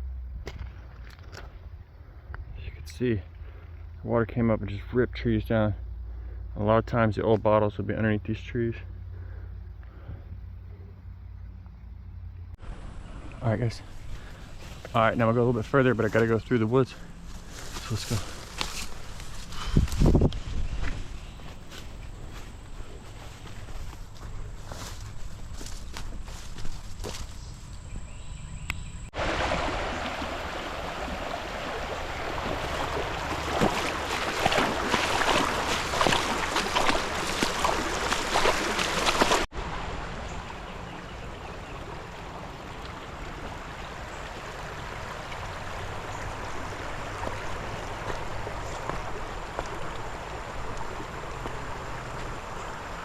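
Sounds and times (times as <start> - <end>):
creek water flowing: 12.6 - 28.2, 29.0 - 53.0
footsteps crunching through brush: 13.9 - 15.2, 15.8 - 28.2, 31.7 - 39.5.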